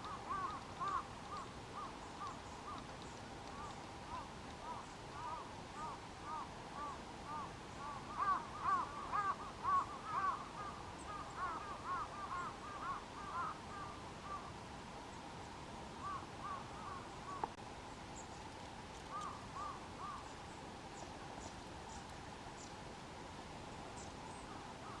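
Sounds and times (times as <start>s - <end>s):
group of birds calling: 0.0s - 2.8s, 3.5s - 14.4s
faint high ticks: 0.0s - 4.8s.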